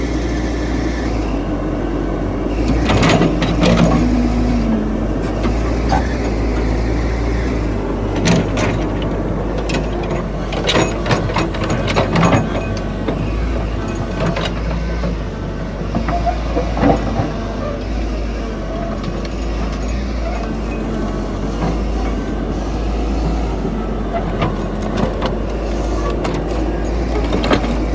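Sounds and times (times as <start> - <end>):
heavy diesel machinery rumbling: 0.0 - 27.9.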